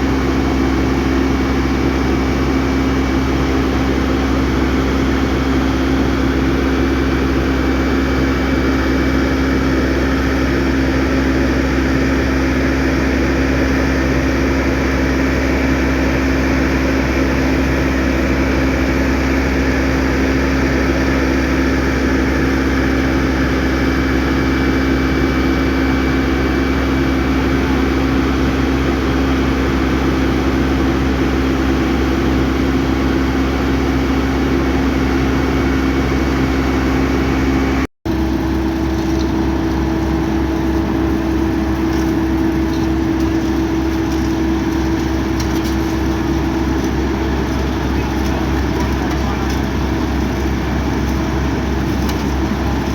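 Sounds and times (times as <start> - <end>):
engine running steadily: 0.0 - 52.9.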